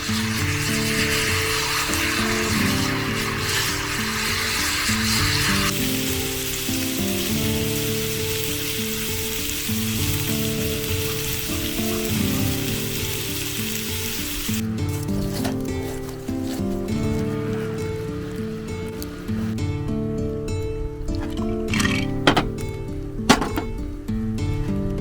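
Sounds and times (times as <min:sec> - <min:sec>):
food sizzling in a pan: 0:00.0 - 0:19.6
background music: 0:00.0 - 0:25.0.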